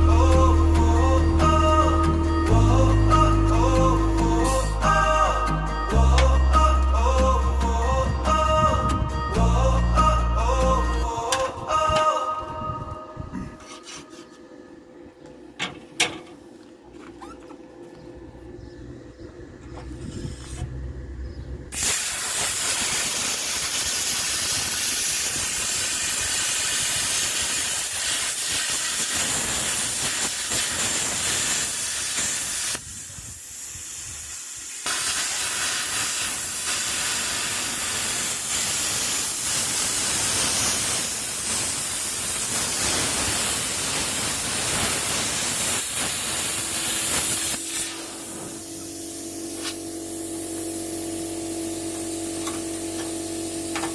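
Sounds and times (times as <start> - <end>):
plasma cutter hissing: 21.7 - 53.9.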